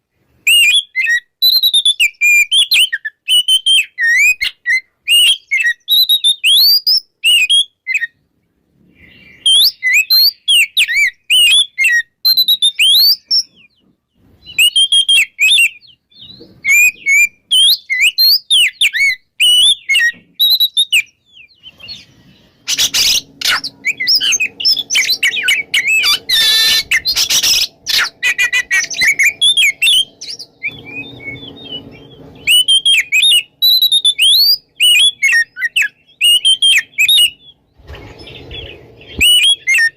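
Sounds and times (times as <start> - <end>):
bird whistling song: 0.4 - 8.2, 8.9 - 39.9
low steady hum: 21.7 - 39.7.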